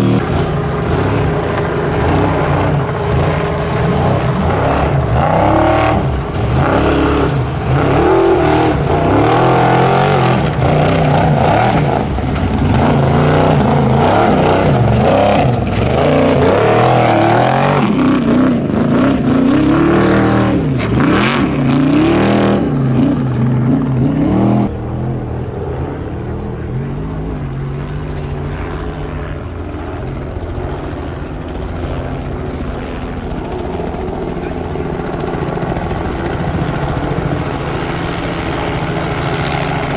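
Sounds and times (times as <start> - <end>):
truck engine revving hard: 0.0 - 24.7.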